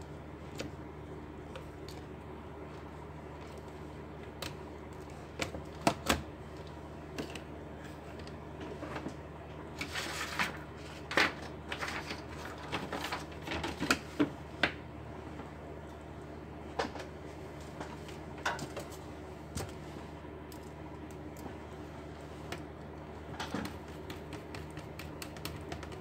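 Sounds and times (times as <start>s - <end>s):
laptop parts clicking and tapping: 23.4s - 26.0s.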